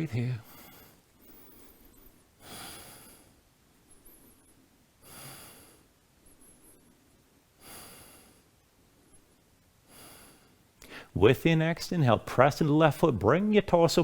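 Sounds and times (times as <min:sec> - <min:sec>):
faint human breathing: 0:00.4 - 0:11.2.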